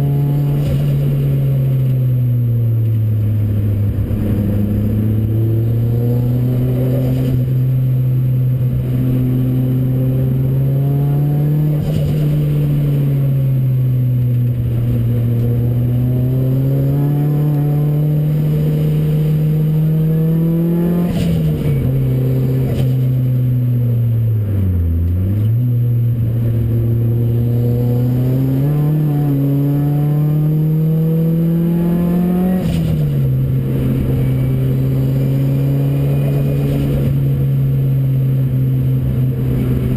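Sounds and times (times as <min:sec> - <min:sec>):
race car engine revving: 0:02.8 - 0:39.9.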